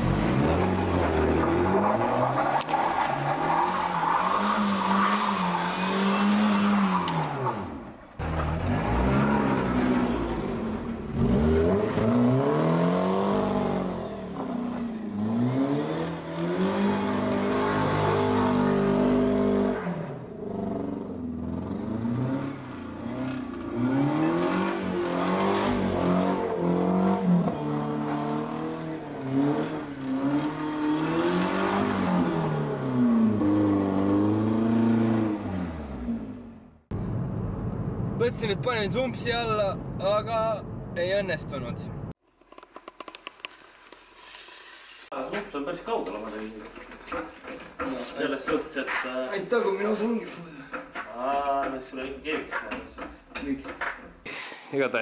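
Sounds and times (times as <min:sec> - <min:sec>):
car engine revving: 0:00.0 - 0:42.2.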